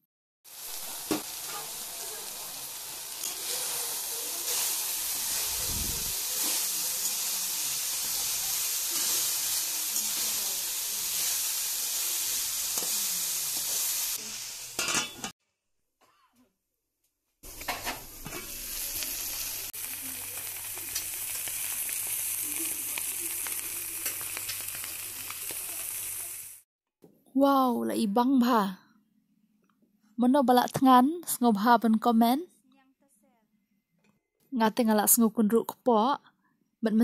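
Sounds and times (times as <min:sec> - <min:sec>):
food sizzling in a wok: 0:00.5 - 0:15.4, 0:17.4 - 0:26.7
metal spatula scraping: 0:03.2 - 0:11.4.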